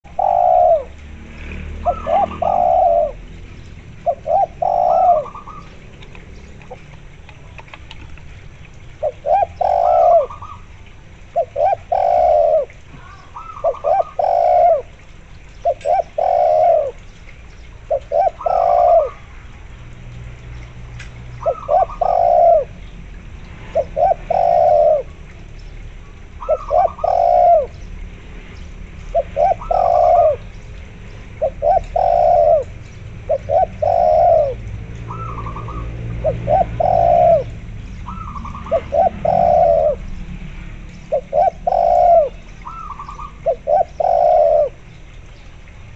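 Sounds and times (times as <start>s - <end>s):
doves cooing: 0.0s - 17.2s, 17.8s - 19.5s, 21.2s - 22.8s, 23.6s - 25.5s, 26.3s - 27.8s, 29.0s - 40.3s, 40.9s - 45.1s.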